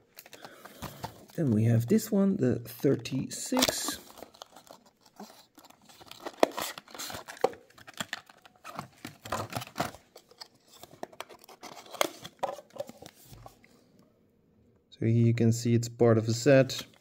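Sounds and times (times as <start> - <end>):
plastic and cardboard crinkling: 0.1 - 1.6, 3.4 - 13.6.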